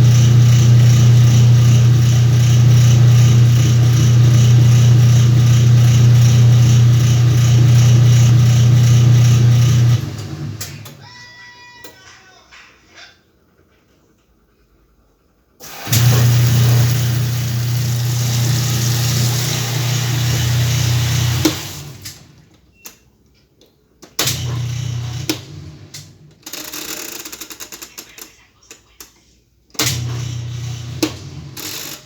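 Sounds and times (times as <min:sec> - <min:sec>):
washing machine motor humming: 0:00.0 - 0:11.4, 0:15.6 - 0:22.6, 0:24.2 - 0:26.4, 0:29.8 - 0:32.0.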